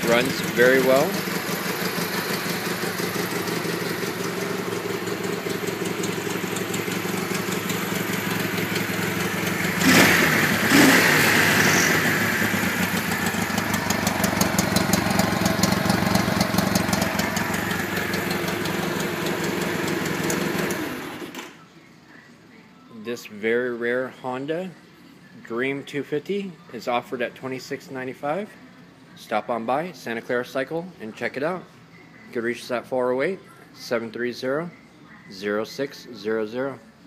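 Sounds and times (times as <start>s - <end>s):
motorcycle engine idling: 0.0s - 21.2s.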